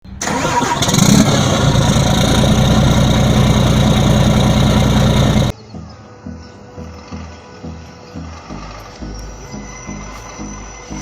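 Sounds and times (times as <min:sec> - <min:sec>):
truck diesel engine running: 0:00.1 - 0:05.5.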